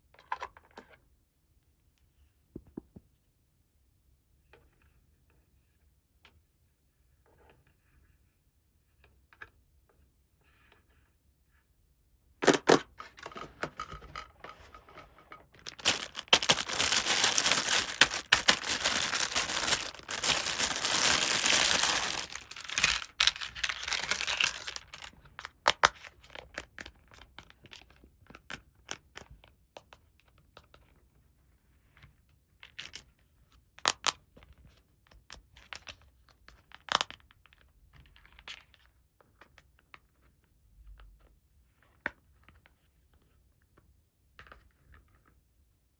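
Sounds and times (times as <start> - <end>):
packaging tearing and crinkling: 12.4 - 13.4, 15.6 - 26.4.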